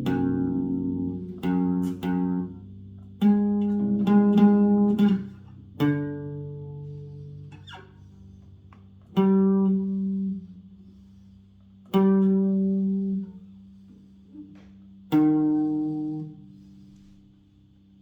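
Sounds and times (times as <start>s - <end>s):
bass guitar plucked notes: 0.0s - 8.0s, 8.6s - 10.7s, 11.8s - 13.7s, 14.4s - 16.5s.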